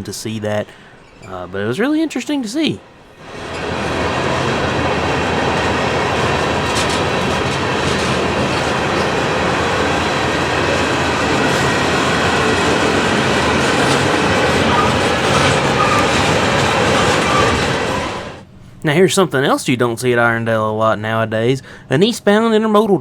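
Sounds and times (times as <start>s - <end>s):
freight train wheels on rail: 3.0s - 18.5s.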